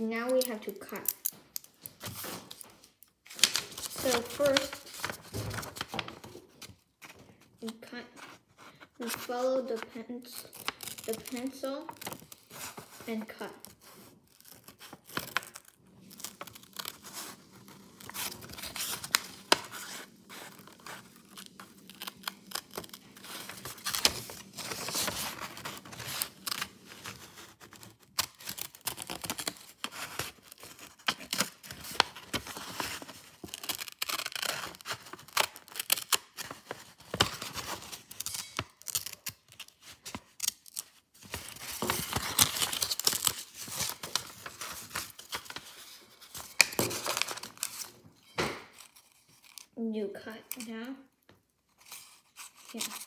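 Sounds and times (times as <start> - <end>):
paper rustling: 1.9 - 49.7
scissors cutting paper: 3.4 - 6.2, 9.0 - 45.8, 51.8 - 53.0.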